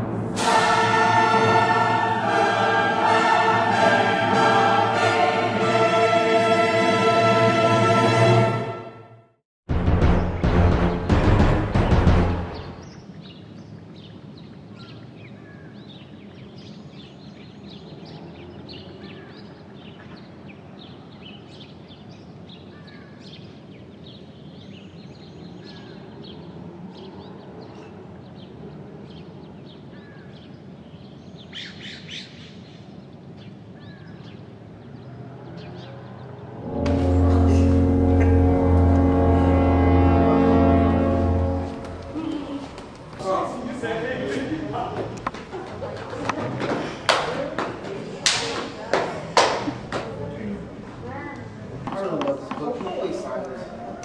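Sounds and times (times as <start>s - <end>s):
music cue: 0.0s - 12.8s, 36.5s - 42.5s
songbirds chirping and calling: 12.5s - 36.6s
low background noise: 12.8s - 54.0s.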